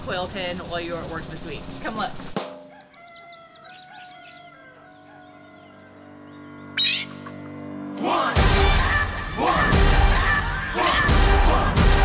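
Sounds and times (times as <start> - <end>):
small birds chirping: 0.7 - 7.4
loud bird call: 2.6 - 7.4.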